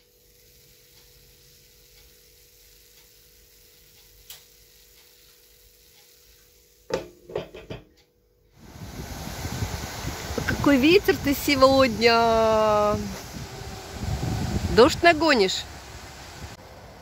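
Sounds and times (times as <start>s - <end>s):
pancakes sizzling in oil: 0.0s - 7.7s, 8.6s - 16.6s
click: 3.9s - 6.2s.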